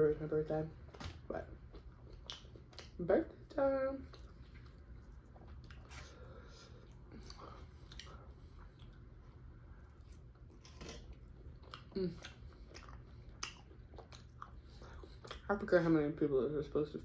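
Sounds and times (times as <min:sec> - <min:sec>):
person chewing food: 0:01.6 - 0:03.0, 0:04.0 - 0:15.5.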